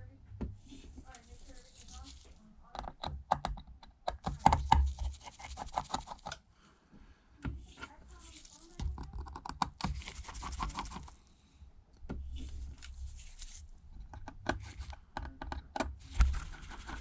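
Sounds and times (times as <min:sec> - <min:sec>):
screwdriver clicking and scraping: 0:12.5 - 0:17.0.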